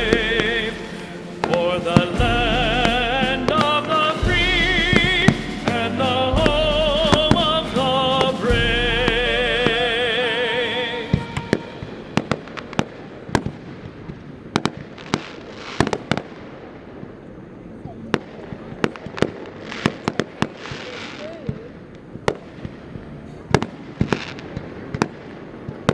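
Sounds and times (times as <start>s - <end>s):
song with heavy bass: 0.0s - 10.2s
fireworks bangs: 0.0s - 16.4s.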